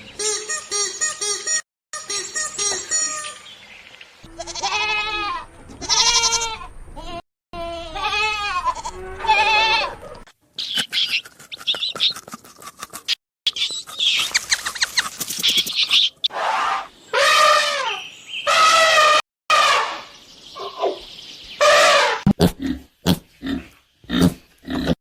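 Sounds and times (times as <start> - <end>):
rapid high-pitched calling: 0.2 - 3.5, 13.5 - 19.0
goats bleating: 4.3 - 10.2.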